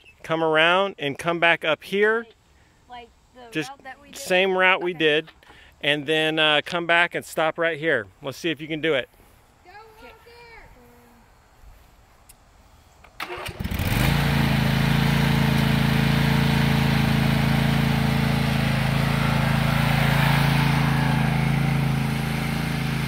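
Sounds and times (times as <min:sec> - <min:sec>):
riding lawn mower engine running: 0:13.2 - 0:23.0.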